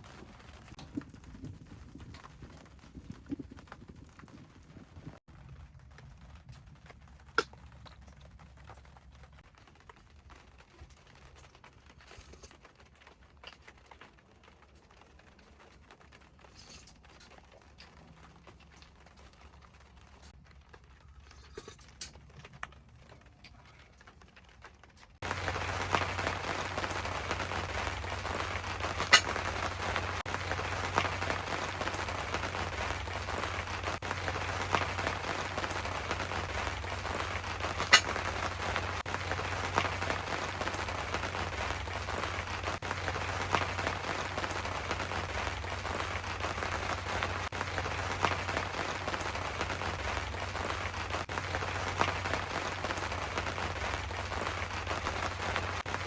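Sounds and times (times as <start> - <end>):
heavy rain on tent fabric: 0.0 - 56.0.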